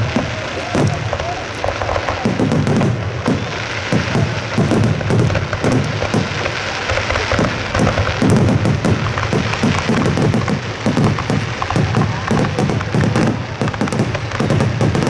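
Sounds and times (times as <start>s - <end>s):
firework shells booming and crackling: 0.0s - 15.0s.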